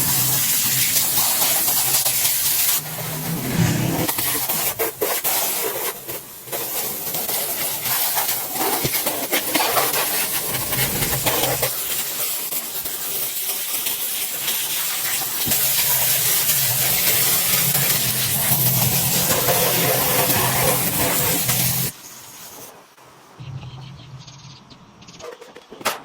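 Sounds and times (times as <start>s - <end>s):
loud pressurized hiss: 10.1s - 22.5s.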